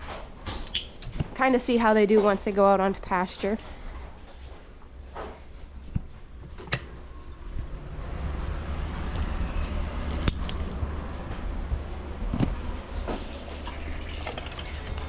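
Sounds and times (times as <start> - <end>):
metallic clinks and knocks: 0.4 - 1.1, 5.1 - 11.5
low steady rumble: 1.4 - 15.0.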